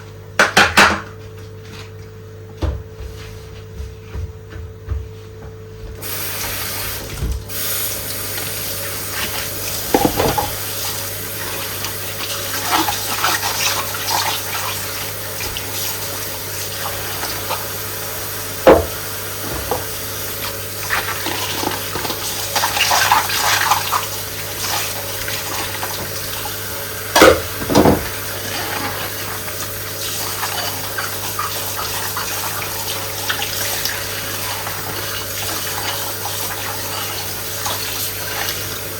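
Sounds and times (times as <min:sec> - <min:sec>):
tap running into a sink: 0:05.9 - 0:11.0, 0:18.6 - 0:26.4, 0:27.1 - 0:29.1.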